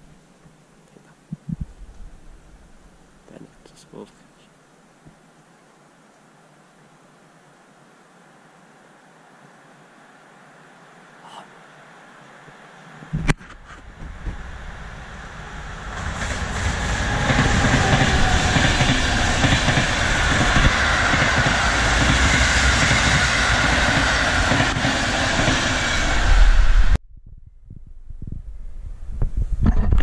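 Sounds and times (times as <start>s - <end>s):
passenger train rumble passing: 13.8s - 27.0s.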